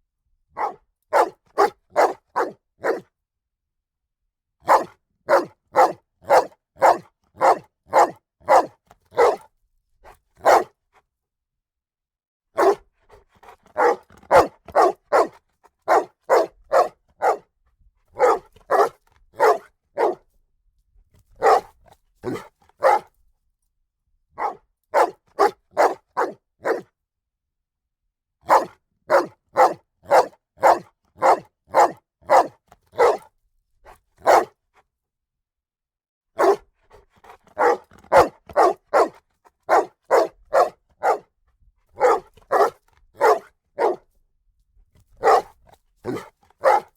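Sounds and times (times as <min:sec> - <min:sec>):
dog barking: 0:00.6 - 0:03.1, 0:04.6 - 0:09.5, 0:10.4 - 0:10.8, 0:12.6 - 0:17.5, 0:18.2 - 0:20.3, 0:21.4 - 0:23.1, 0:24.4 - 0:26.9, 0:28.4 - 0:33.3, 0:34.2 - 0:34.6, 0:36.4 - 0:41.4, 0:42.0 - 0:44.1, 0:45.2 - 0:46.9.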